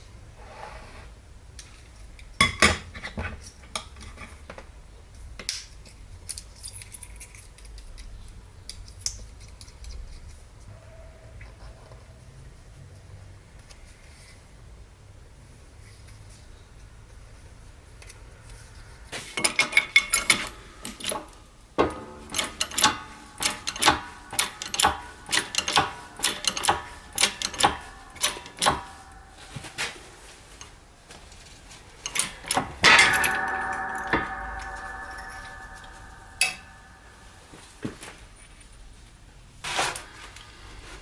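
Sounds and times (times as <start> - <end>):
metal parts clinking: 19.2 - 37.4
metal clang ringing: 19.4 - 37.6.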